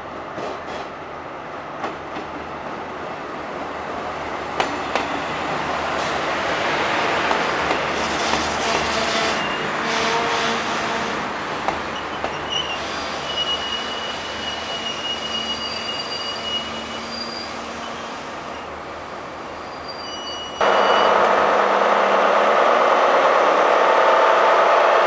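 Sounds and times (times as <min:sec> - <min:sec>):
train wheels rumbling on rails: 0:00.3 - 0:01.0, 0:04.4 - 0:19.6, 0:20.4 - 0:25.0
high-pitched wheel squeal: 0:12.0 - 0:18.7, 0:19.6 - 0:21.3.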